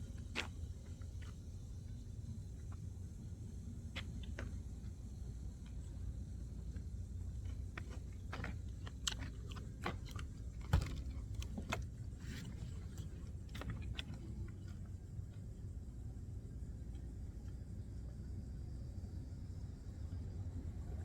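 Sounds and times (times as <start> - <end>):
person chewing crunchy food: 7.2 - 15.4.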